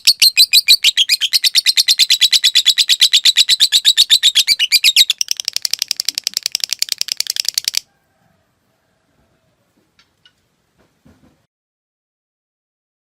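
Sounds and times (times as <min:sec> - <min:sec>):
lovebird chattering trill: 0:00.0 - 0:07.9.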